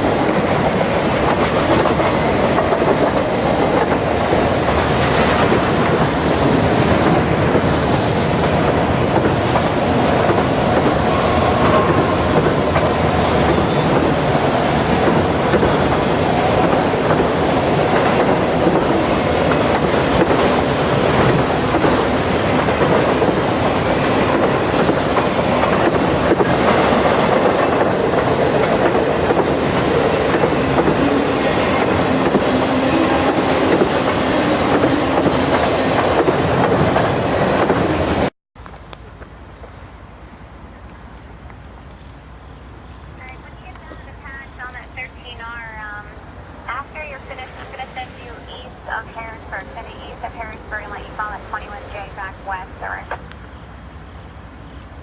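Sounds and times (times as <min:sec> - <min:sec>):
freight train wheels clattering: 0:00.0 - 0:39.8.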